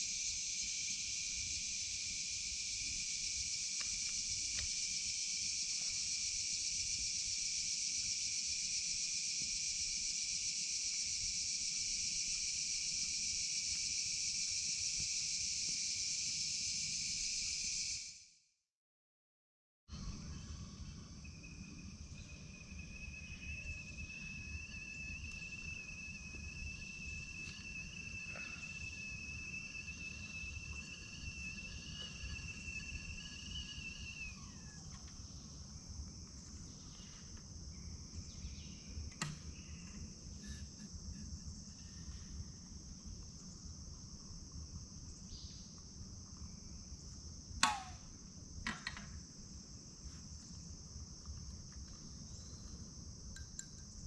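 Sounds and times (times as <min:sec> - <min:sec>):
crickets chirring: 0:00.0 - 0:18.4, 0:19.9 - 0:54.0
steady high tone: 0:20.4 - 0:34.8
quick downward chirp: 0:21.5 - 0:34.9.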